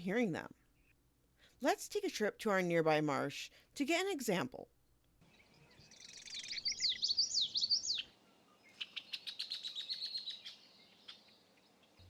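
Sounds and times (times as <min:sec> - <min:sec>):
bird singing repeated notes: 0:05.2 - 0:12.0
bird chattering trill: 0:05.9 - 0:08.1.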